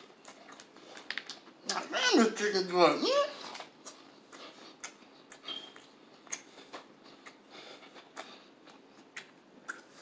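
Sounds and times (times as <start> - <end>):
chewing crunchy food: 0.0 - 1.8, 3.3 - 10.0
mouth smacks: 3.4 - 10.0.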